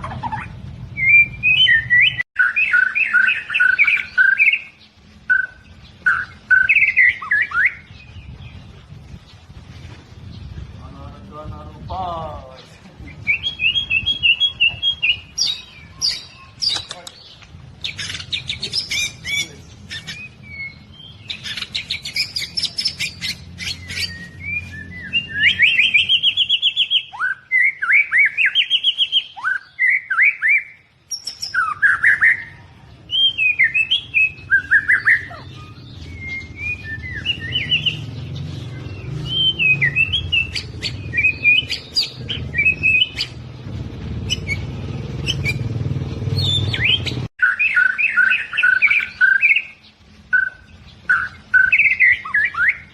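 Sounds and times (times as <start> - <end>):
bird singing varied song: 0.0 - 52.9.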